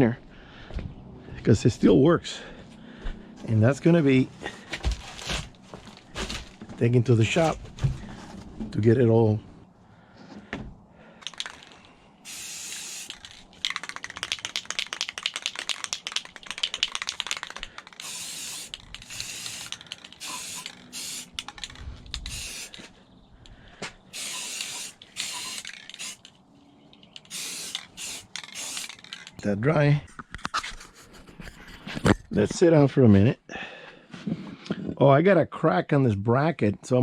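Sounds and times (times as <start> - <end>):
aerosol spray can hissing: 12.2 - 22.8, 24.1 - 26.3, 27.2 - 29.2.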